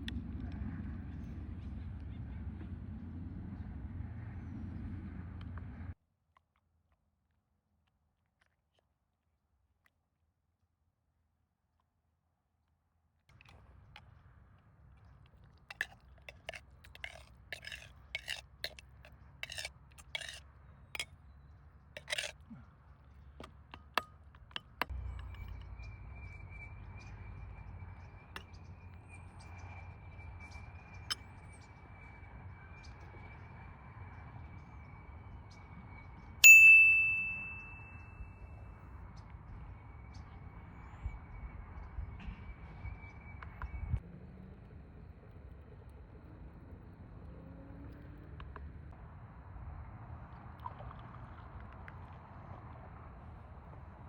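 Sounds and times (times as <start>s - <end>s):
loud ringing metal clink: 36.4s - 38.3s.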